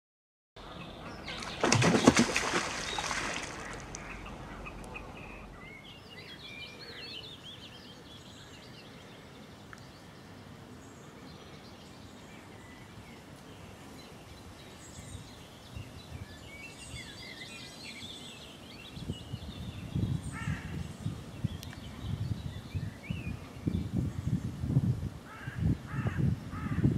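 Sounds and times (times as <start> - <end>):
small birds chirping: 0.6 - 24.6.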